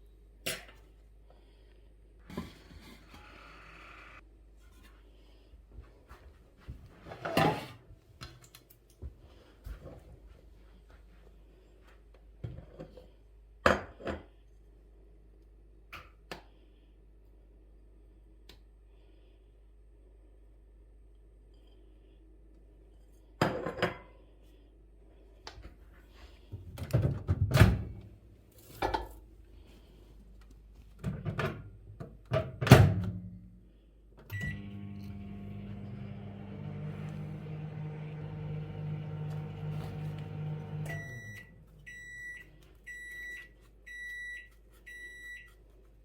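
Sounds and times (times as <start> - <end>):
microwave oven humming: 34.2 - 43.2
microwave start beep: 34.3 - 45.5.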